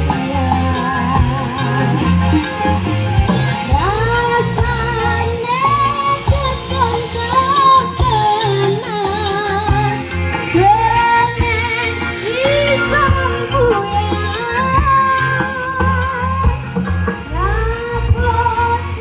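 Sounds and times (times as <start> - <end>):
woman singing: 0.0 - 2.5, 3.7 - 19.0
heavy bass beat: 0.0 - 5.2, 9.7 - 18.6.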